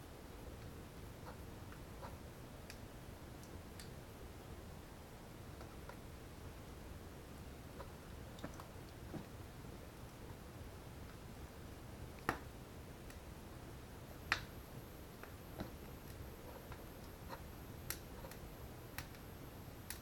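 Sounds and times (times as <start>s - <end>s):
faint steady hiss: 0.0s - 20.0s
wood fire crackling: 0.0s - 20.0s.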